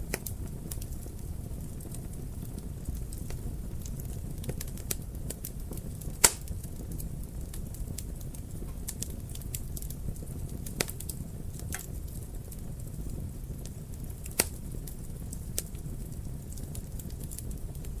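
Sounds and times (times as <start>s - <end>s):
fire popping loudly: 0.0s - 18.0s
wood fire crackling: 0.0s - 18.0s.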